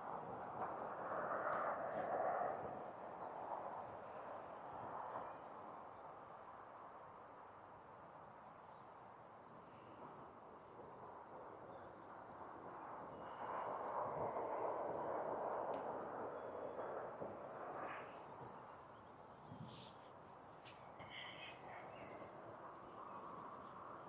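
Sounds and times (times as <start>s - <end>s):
steady rushing noise: 9.7s - 24.0s
distant bird calls: 16.0s - 24.0s.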